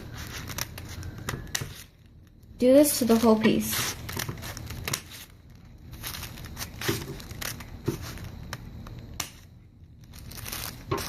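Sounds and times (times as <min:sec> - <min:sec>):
paper crinkling: 0:00.0 - 0:11.0
scissors snipping paper: 0:02.9 - 0:11.0.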